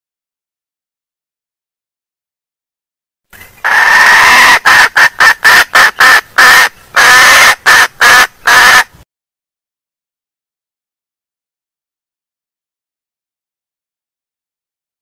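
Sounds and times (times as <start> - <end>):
junglefowl cackling call: 3.6 - 8.9.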